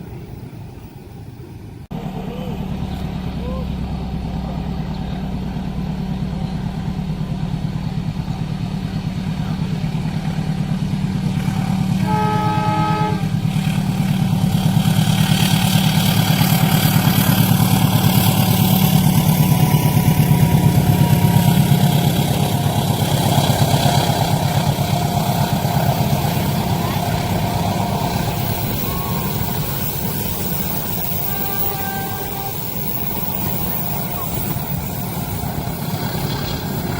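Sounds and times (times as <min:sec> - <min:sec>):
train rushing rumble: 0:00.0 - 0:36.9
low engine drone: 0:01.9 - 0:36.9
train horn: 0:11.5 - 0:13.6, 0:19.6 - 0:35.4.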